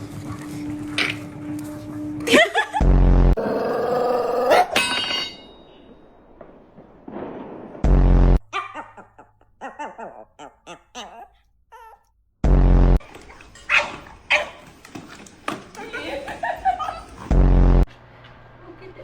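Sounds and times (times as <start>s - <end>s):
heavy low bumps: 5.8s - 8.4s
dog whining and yipping: 8.6s - 12.1s.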